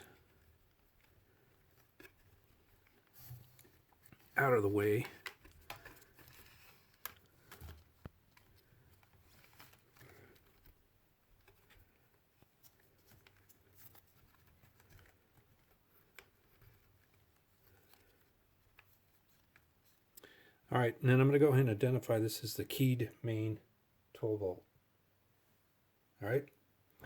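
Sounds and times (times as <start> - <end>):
rustling of wires: 0.0 - 20.2.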